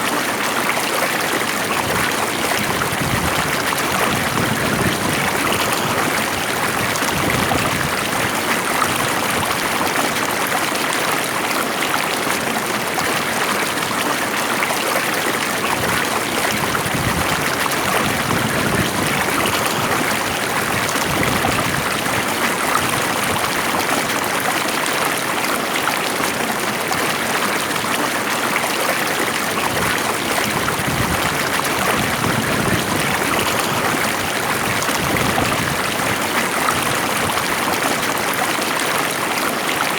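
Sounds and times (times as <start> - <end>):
stream water rushing and gurgling: 0.0 - 39.9.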